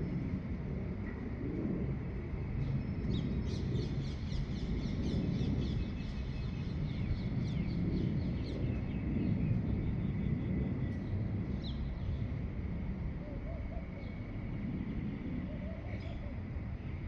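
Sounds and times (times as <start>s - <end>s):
steady low rumble: 0.0s - 13.2s.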